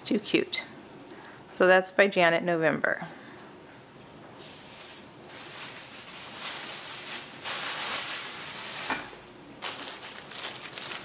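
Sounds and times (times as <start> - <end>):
wrapping material rustling: 4.4 - 9.0, 9.6 - 11.0.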